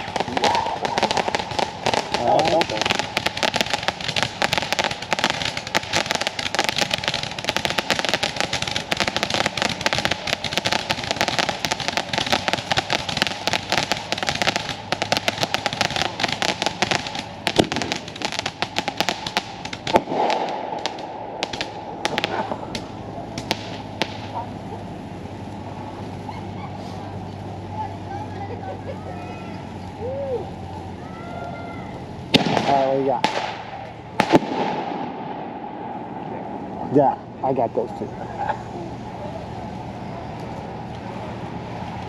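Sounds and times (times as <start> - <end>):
loud bangs: 0.0 - 24.7, 32.3 - 37.4
firecrackers popping: 0.0 - 31.2, 32.0 - 42.0.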